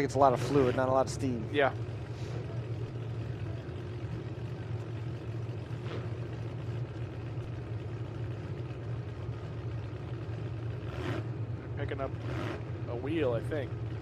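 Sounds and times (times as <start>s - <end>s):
truck engines idling: 0.0s - 14.0s.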